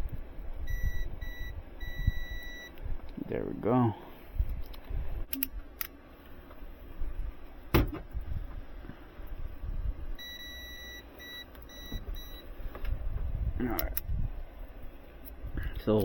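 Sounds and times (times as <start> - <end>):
electrical meter beeping: 0.6 - 2.8, 10.2 - 12.5
sharp click: 4.6 - 6.0.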